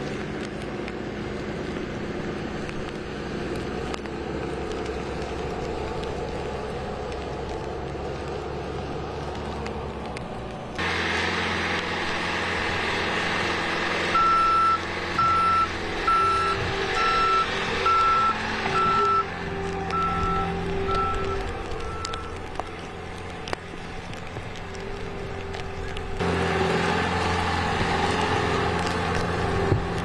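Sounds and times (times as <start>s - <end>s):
engine running: 0.0s - 30.0s
reversing alarm beeping: 14.1s - 19.3s, 19.9s - 22.3s.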